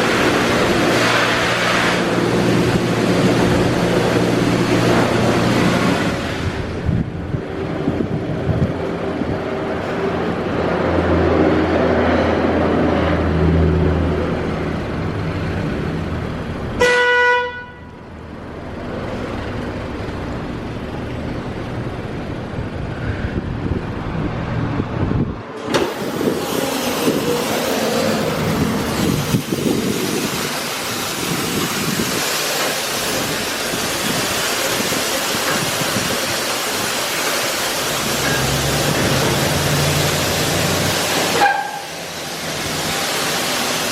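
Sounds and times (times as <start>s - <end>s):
running vehicle and machinery noise: 0.0s - 43.9s
car horn honk: 16.8s - 18.0s, 41.4s - 41.9s.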